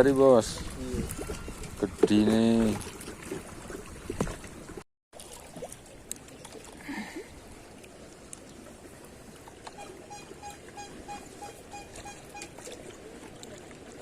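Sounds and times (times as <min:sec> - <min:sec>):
water washing at shore: 0:00.0 - 0:14.0
faint regular beeping: 0:09.7 - 0:12.6.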